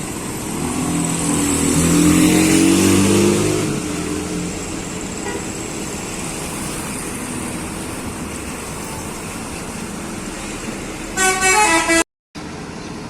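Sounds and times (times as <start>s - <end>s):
vehicle engine and road noise: 0.0s - 13.0s
multi-tone bus horn: 5.2s - 5.6s, 11.1s - 12.1s.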